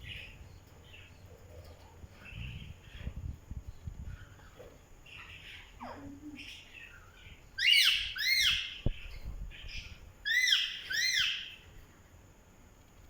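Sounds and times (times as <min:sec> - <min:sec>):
parrot calling: 0:04.2 - 0:08.9, 0:09.8 - 0:11.6.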